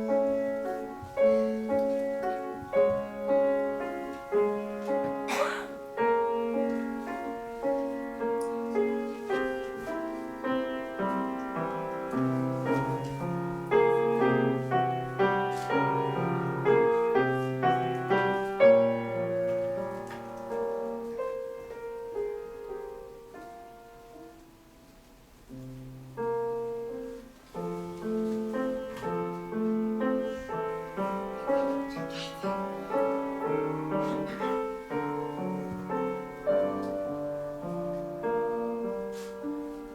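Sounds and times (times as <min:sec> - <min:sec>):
solo piano playing: 0:00.0 - 0:39.9.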